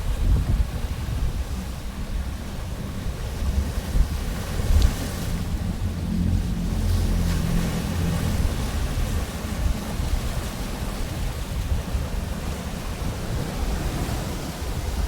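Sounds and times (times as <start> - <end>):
ocean surf washing in: 0.0 - 15.0.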